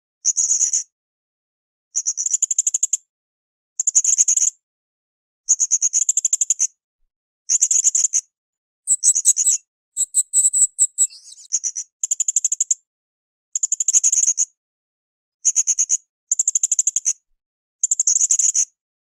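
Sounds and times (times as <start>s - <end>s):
parrot high-pitched chirps: 8.9s - 11.5s.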